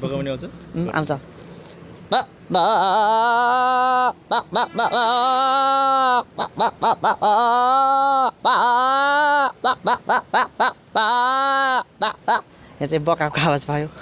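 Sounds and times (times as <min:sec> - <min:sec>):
man imitating goat bleating: 0:02.1 - 0:12.5.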